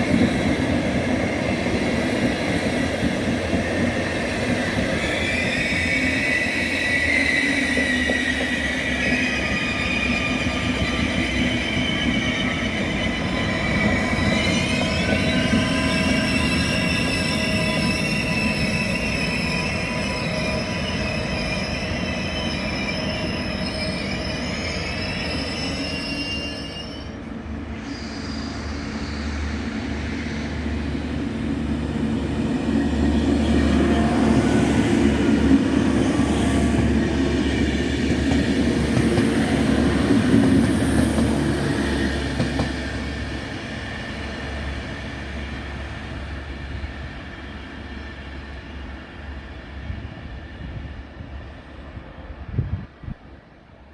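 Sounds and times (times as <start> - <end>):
train wheel squeal: 0.0 - 31.4, 32.2 - 53.2
train rolling rumble: 27.1 - 53.9.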